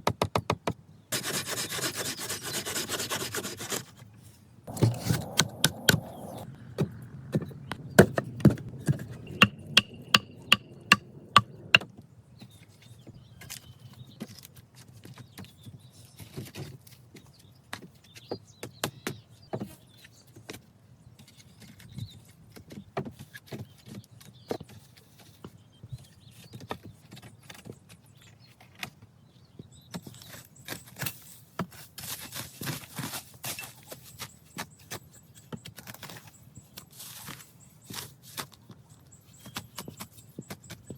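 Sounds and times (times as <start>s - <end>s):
hissing rustling: 4.7s - 11.8s
hand tool striking wood: 8.9s - 11.8s.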